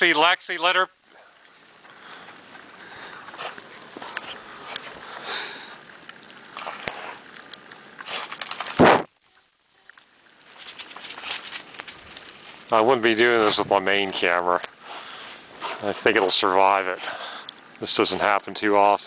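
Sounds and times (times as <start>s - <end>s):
dogs running in snow: 3.1s - 5.1s, 10.5s - 13.8s
loud sharp rustle: 8.0s - 9.1s, 10.4s - 12.7s.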